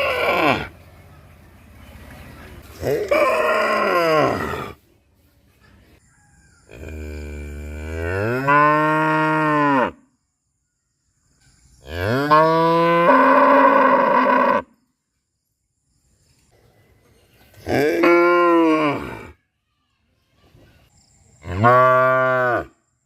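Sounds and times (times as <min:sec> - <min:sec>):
cow mooing: 0:06.7 - 0:10.0, 0:21.5 - 0:22.7.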